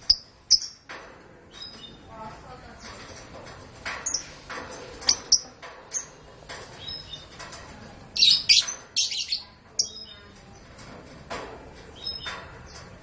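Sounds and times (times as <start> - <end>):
canaries chirping: 0.0 - 0.8, 1.5 - 2.1, 5.0 - 7.4, 8.1 - 10.8, 11.9 - 12.9.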